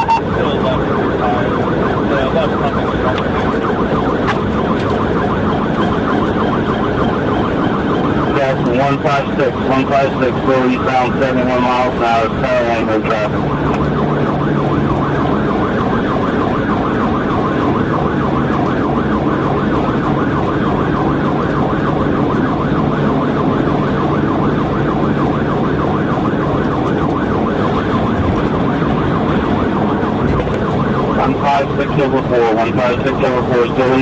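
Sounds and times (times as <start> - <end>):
engine and road noise: 0.0 - 34.0
police siren yelping: 0.0 - 34.0.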